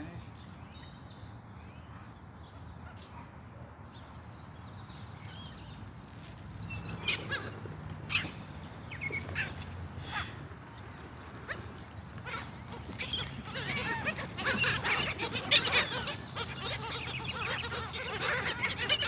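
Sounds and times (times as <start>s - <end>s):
seagulls calling: 6.7s - 19.0s.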